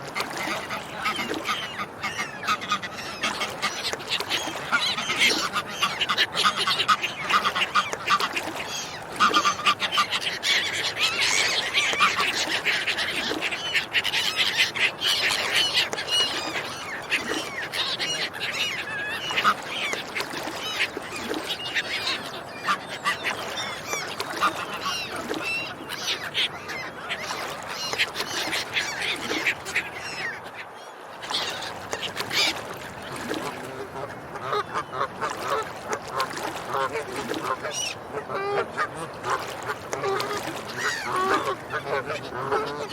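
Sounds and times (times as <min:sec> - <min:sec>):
ducks and swans calling: 0:00.1 - 0:42.9.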